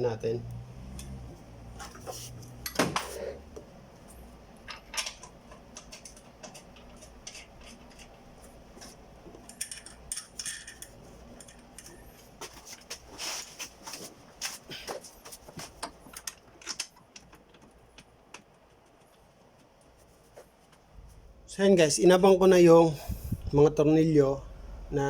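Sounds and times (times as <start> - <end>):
metal bolts clinking: 9.4 - 11.8.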